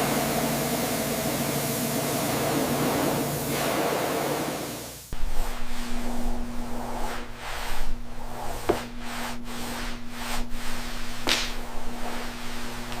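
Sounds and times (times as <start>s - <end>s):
pressure washer spraying water: 0.0s - 5.1s
machine humming: 0.0s - 13.0s.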